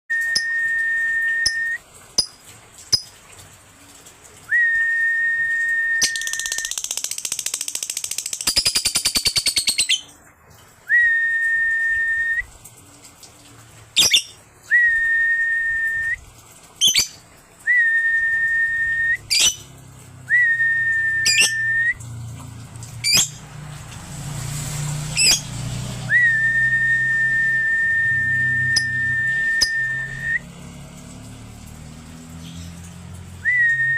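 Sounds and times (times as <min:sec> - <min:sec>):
high whistle notes: 0:00.1 - 0:01.8, 0:04.5 - 0:06.7, 0:26.1 - 0:30.5.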